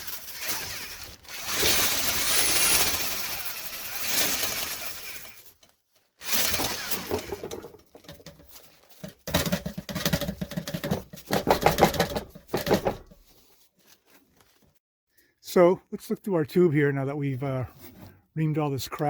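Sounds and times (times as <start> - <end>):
brush rattling and scraping in duct: 0.0 - 14.7.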